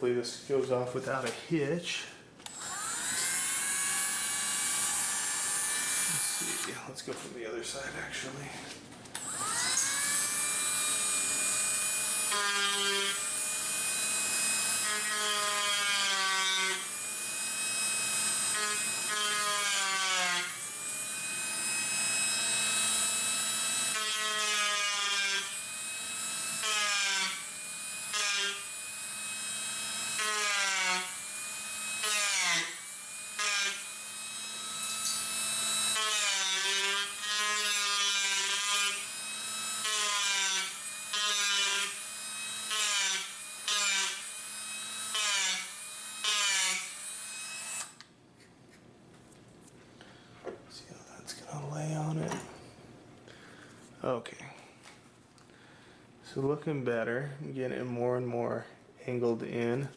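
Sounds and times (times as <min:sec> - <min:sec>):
rotary tool cutting wood: 0:02.4 - 0:06.8, 0:09.1 - 0:48.1.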